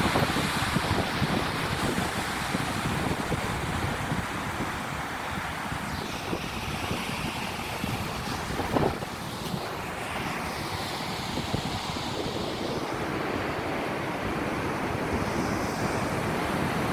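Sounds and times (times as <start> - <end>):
ocean waves breaking on shore: 0.0 - 16.9
wind buffeting microphone: 0.0 - 16.9.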